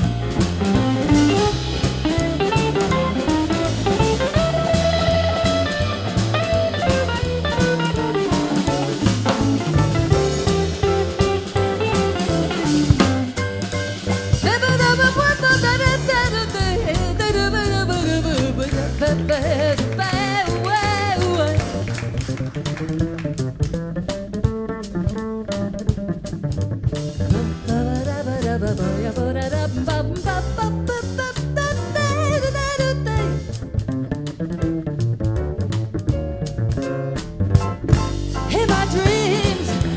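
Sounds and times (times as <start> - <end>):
lead melody line: 0.0 - 18.6
jazz band playing: 0.0 - 39.9
walking bass: 0.0 - 39.9.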